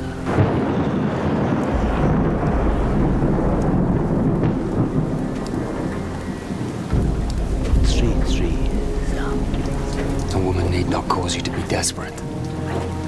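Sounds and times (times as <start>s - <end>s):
heavy rain: 0.0s - 13.0s
thunder rumbling: 0.0s - 13.0s.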